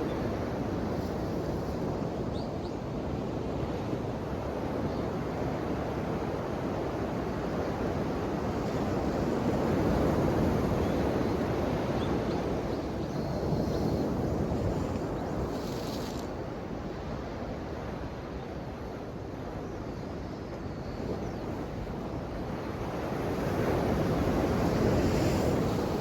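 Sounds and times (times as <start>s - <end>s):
ocean waves washing in: 23.7s - 26.0s.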